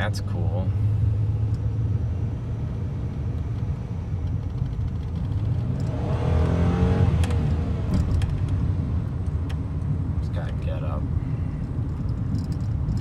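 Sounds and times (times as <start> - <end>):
car engine droning: 0.0 - 13.0
rising engine whine: 0.7 - 10.2.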